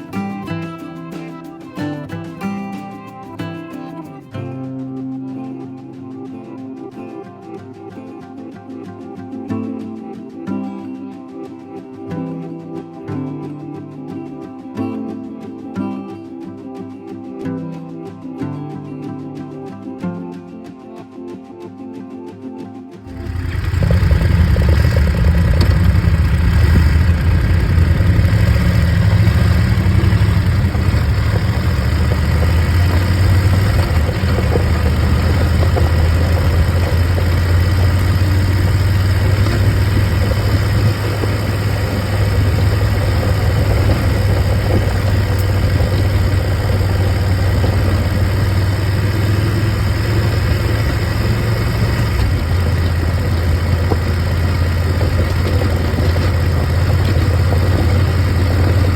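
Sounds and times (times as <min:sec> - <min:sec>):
motorcycle engine running: 0:23.1 - 0:58.9.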